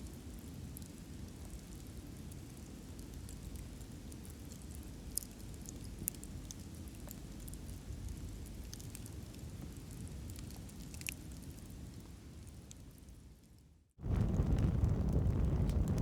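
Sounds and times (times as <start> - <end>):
campfire crackling: 0.1 - 16.0.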